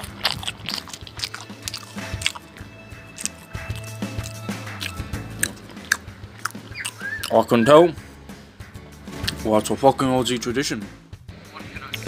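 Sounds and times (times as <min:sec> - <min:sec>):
steady low hum: 0:00.0 - 0:07.4
person chewing with wet clicks: 0:00.0 - 0:07.5
quiet background music: 0:00.0 - 0:12.0.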